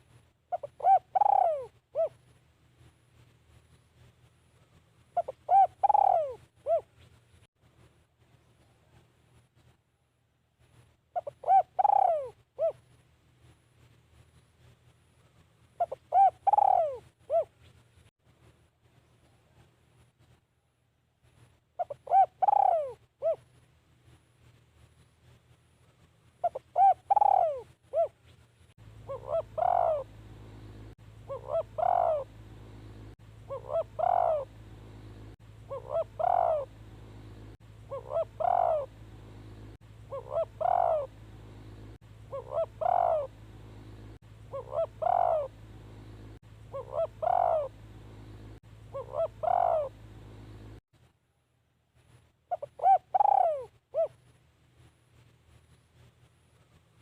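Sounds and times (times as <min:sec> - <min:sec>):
dove cooing: 0:00.5 - 0:02.2, 0:05.1 - 0:07.0, 0:11.2 - 0:12.8, 0:15.8 - 0:17.5, 0:21.8 - 0:23.5, 0:26.4 - 0:28.2, 0:29.0 - 0:50.8, 0:52.5 - 0:54.2
steady low hum: 0:23.0 - 0:52.6.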